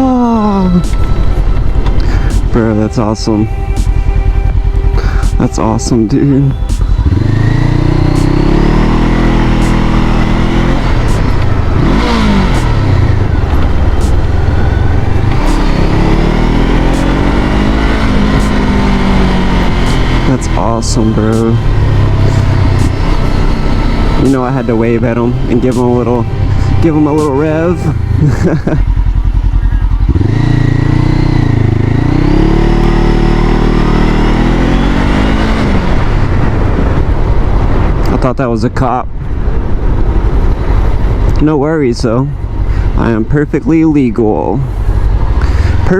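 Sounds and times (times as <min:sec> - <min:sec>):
motorcycle engine revving: 0:00.0 - 0:38.3, 0:39.2 - 0:45.9
rushing noise: 0:00.4 - 0:38.2.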